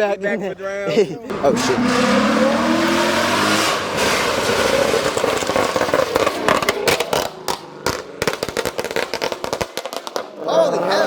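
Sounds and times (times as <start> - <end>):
car engine revving high: 1.3 - 7.3
exhaust pops and crackles: 1.3 - 10.4
tyre noise: 1.3 - 11.0.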